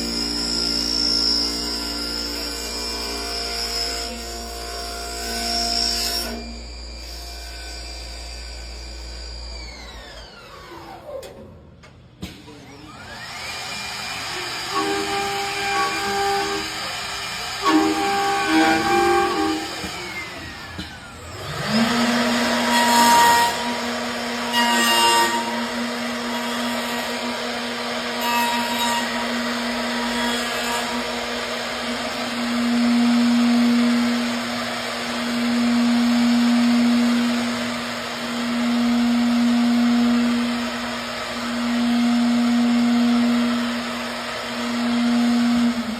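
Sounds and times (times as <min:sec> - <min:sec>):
router cutting wood: 0:00.0 - 0:11.4, 0:12.2 - 0:45.9
router spindle humming: 0:12.6 - 0:45.9.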